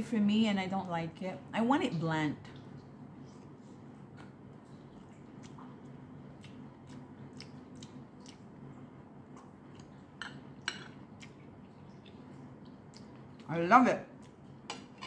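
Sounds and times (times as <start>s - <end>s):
low steady hum: 0.0s - 15.0s
chewing with wet mouth clicks: 2.5s - 13.5s, 14.1s - 14.9s.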